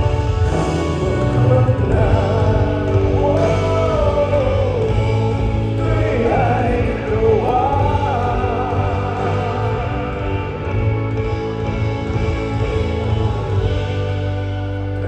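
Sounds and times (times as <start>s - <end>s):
person singing: 0.0s - 11.2s
live band with heavy bass: 0.0s - 15.0s.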